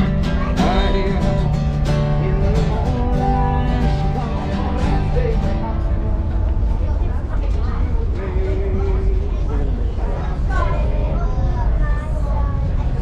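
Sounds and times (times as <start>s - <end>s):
acoustic guitar strumming: 0.0s - 7.2s.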